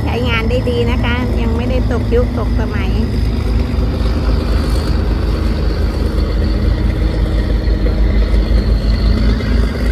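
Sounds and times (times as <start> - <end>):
boat engine pulsing drone: 0.0 - 9.9.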